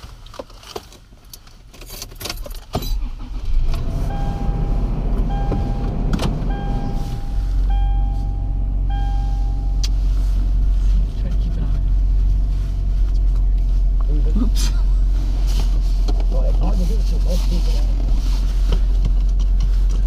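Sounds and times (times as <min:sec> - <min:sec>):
car engine idling: 0:03.0 - 0:20.0
car warning chime beeping: 0:03.3 - 0:10.1.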